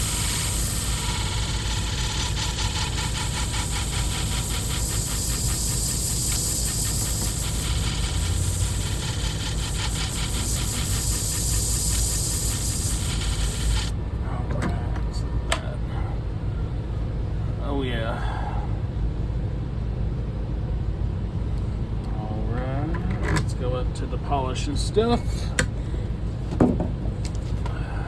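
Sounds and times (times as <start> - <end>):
steel hissing on sharpening disc: 0.0 - 13.9
motor low hum: 0.0 - 15.7.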